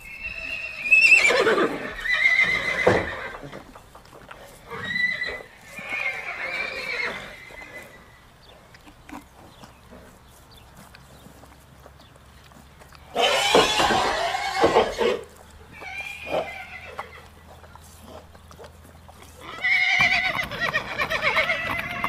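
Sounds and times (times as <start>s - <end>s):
horse whinnying: 0.0s - 3.8s, 4.6s - 8.2s, 13.0s - 17.3s, 19.4s - 22.0s.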